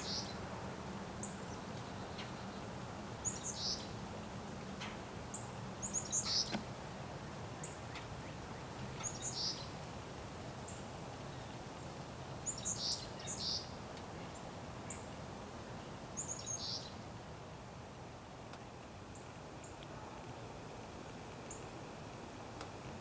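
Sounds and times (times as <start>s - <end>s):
songbird chirping: 0.0s - 0.4s, 1.2s - 4.0s, 4.8s - 6.7s, 7.6s - 9.8s, 12.4s - 15.1s, 16.2s - 17.0s
low background rumble and hiss: 0.0s - 23.0s
faint tick: 18.5s - 18.9s.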